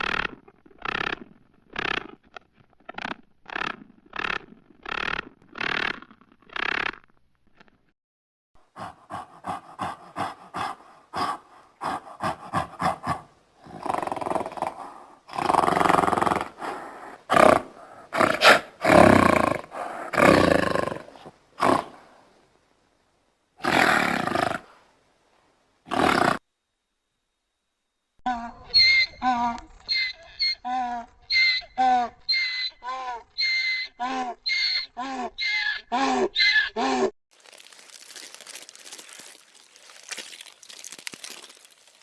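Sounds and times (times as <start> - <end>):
tiger roaring: 8.8 - 22.0.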